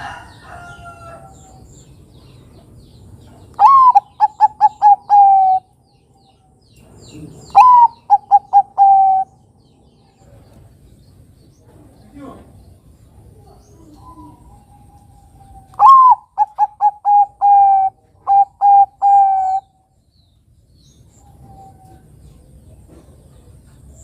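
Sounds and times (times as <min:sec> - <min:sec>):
dove cooing: 0:03.6 - 0:05.7, 0:07.1 - 0:09.4, 0:13.3 - 0:19.7.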